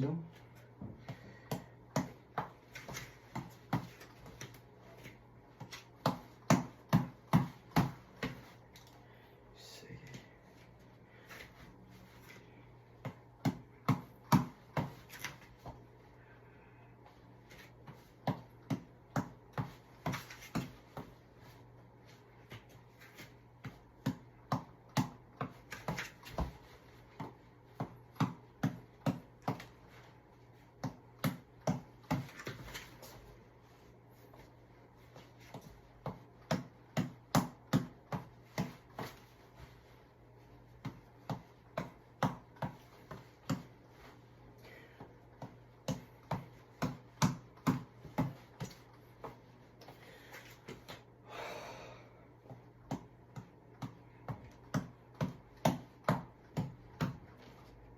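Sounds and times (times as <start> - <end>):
ball slapping against fists: 0.9 - 8.6, 35.4 - 39.8, 40.6 - 44.2, 45.0 - 49.9.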